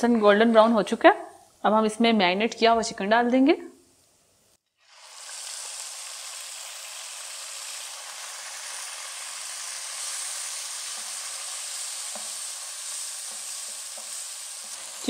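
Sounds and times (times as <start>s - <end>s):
chicken sizzling in hot oil: 4.6s - 15.0s.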